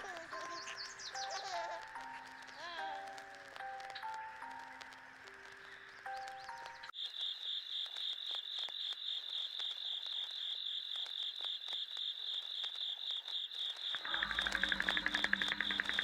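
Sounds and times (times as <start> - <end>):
music: 0.0 - 6.9, 14.0 - 16.0
crickets or frogs chirping: 0.0 - 16.0.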